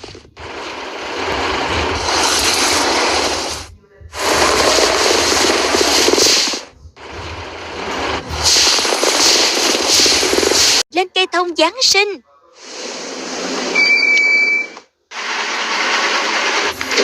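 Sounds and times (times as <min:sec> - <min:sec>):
rattling engine-like noise: 0:00.0 - 0:10.8.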